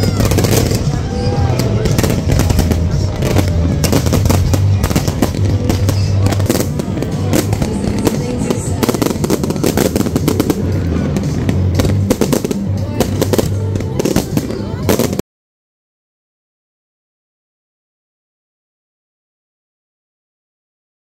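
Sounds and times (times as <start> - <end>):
fireworks bangs and crackles: 0.0 - 15.2
loud music with heavy bass: 0.0 - 15.2.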